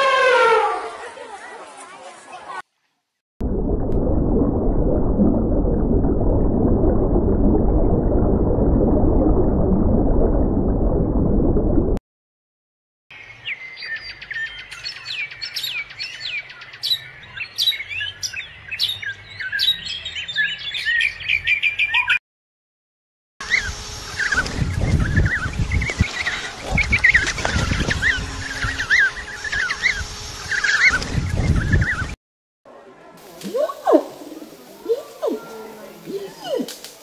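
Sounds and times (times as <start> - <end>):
birds chirping and trilling: 13.1 - 22.2, 23.4 - 32.2.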